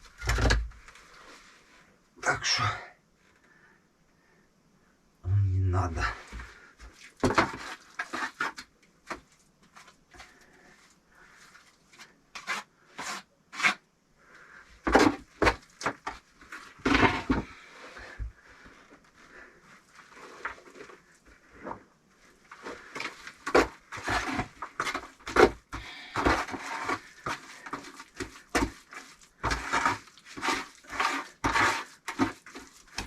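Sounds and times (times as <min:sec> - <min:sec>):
bricks scraping: 0:07.2 - 0:08.6, 0:14.9 - 0:18.2, 0:22.5 - 0:33.0.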